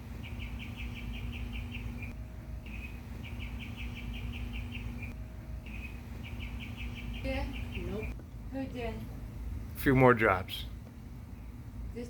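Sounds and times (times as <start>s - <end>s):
bird singing trill: 0.0s - 8.2s
steady low hum: 0.0s - 12.0s.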